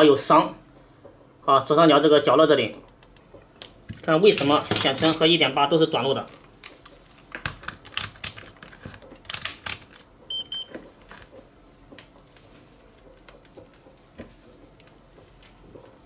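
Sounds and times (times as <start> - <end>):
multimeter beep: 10.3 - 10.7.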